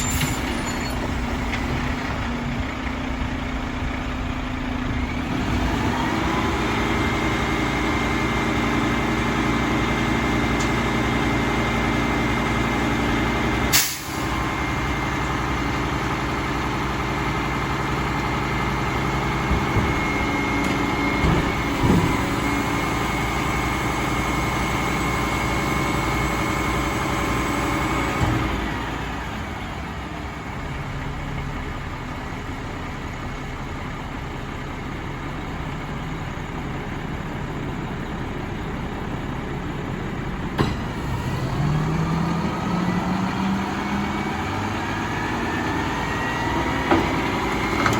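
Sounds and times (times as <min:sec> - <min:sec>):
diesel engine with high whine: 0:00.0 - 0:47.9
short clunks: 0:19.4 - 0:22.4, 0:40.4 - 0:41.2.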